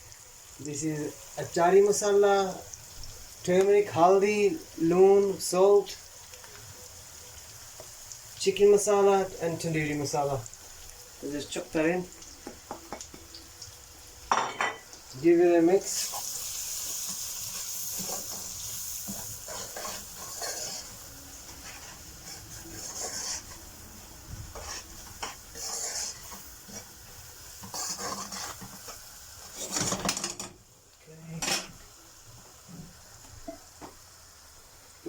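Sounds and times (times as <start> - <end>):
onions sizzling in a pan: 0.0 - 35.0
spoon scraping a pan: 15.8 - 23.7, 24.5 - 26.9, 27.5 - 30.1.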